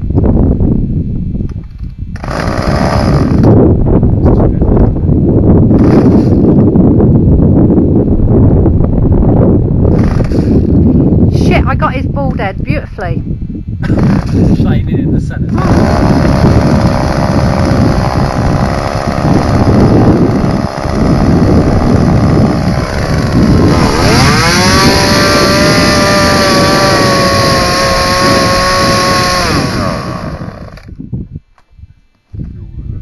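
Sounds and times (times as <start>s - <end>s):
chainsaw running: 2.2s - 3.6s, 5.8s - 6.4s, 9.9s - 10.7s, 13.8s - 14.5s, 15.5s - 31.0s.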